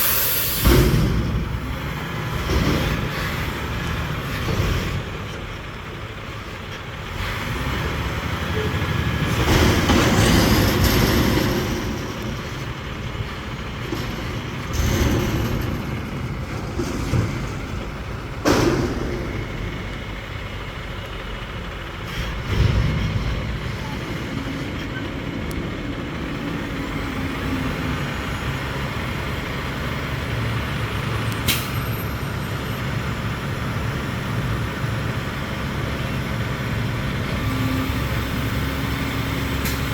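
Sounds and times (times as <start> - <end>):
loud hiss: 0.0 - 0.9
diesel engine running: 0.0 - 39.9.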